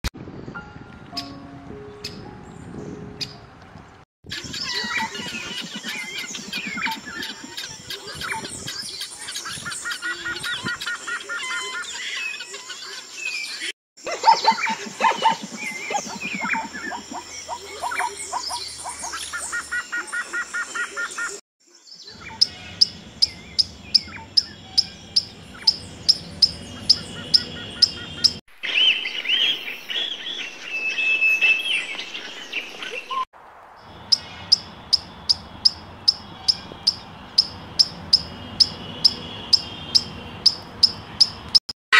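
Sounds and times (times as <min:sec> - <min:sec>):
guineafowl chattering: 0:04.3 - 0:08.5, 0:14.1 - 0:21.4, 0:22.1 - 0:28.4, 0:34.0 - 0:41.4.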